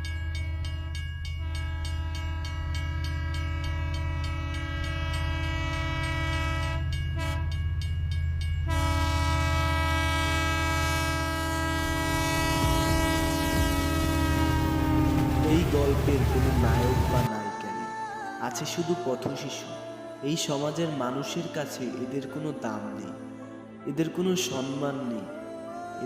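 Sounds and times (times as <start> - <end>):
train horn: 0.0 - 7.6, 8.6 - 17.3.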